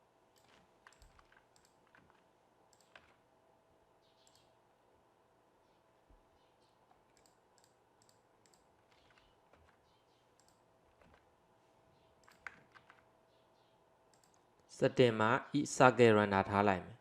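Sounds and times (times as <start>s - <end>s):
faint steady hum: 0.0s - 17.0s
mouse and keyboard clicks: 0.3s - 3.2s, 4.0s - 4.5s, 6.6s - 11.3s, 12.2s - 13.1s, 14.1s - 14.7s.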